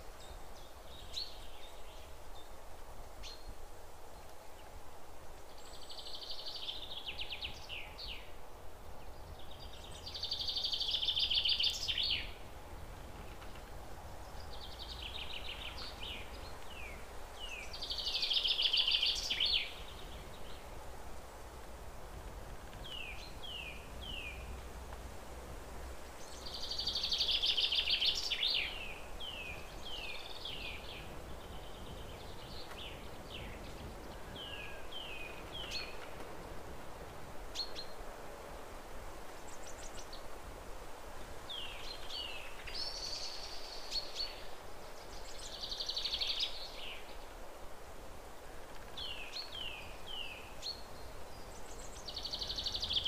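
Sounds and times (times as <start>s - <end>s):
faint steady hiss: 0.0s - 53.0s
birds chirping: 9.0s - 20.7s, 26.2s - 36.2s, 48.9s - 53.0s.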